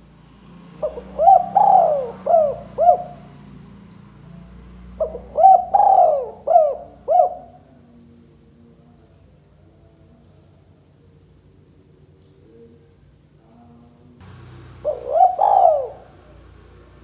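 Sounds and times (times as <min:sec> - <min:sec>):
dove cooing: 0:00.8 - 0:03.3, 0:05.0 - 0:07.6, 0:14.3 - 0:17.0.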